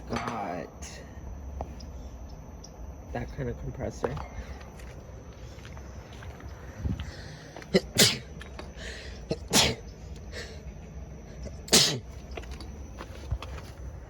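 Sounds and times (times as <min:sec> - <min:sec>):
person sneezing: 0:07.7 - 0:08.4, 0:09.3 - 0:09.8, 0:11.7 - 0:12.1.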